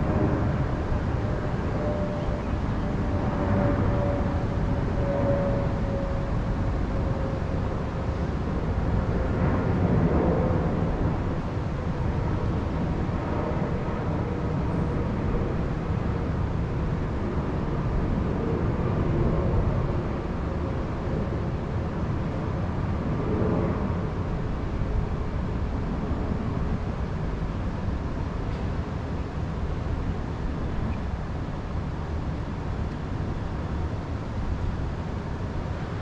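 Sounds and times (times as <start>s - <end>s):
wind noise: 0.0s - 36.0s.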